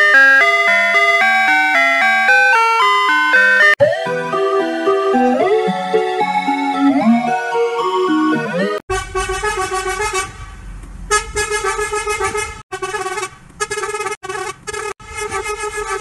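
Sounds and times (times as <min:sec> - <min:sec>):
bus horn honking: 0:08.9 - 0:16.0.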